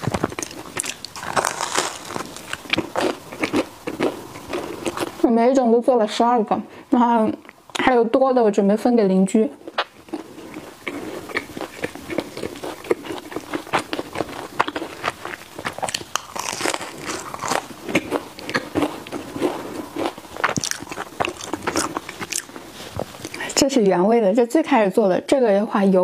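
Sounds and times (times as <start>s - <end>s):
biting and chewing crunches: 0.0s - 5.2s, 9.6s - 23.4s.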